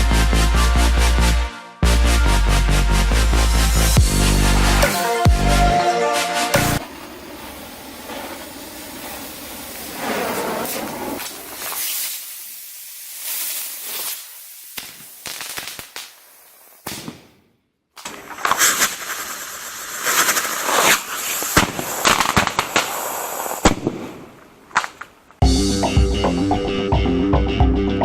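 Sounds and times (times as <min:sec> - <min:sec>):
firework rockets hissing: 0:03.4 - 0:17.2, 0:18.0 - 0:25.1
firework crackling pops and bangs: 0:06.8 - 0:25.4.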